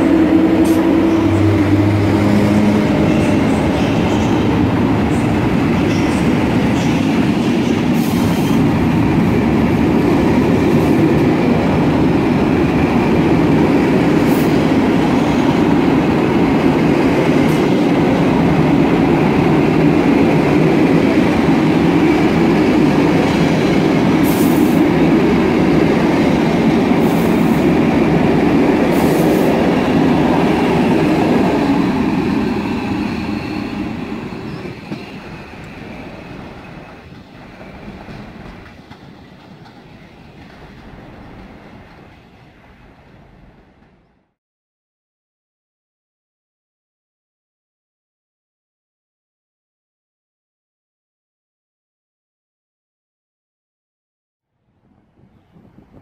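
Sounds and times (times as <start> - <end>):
train wheels rumbling on rail: 0.0 - 44.3.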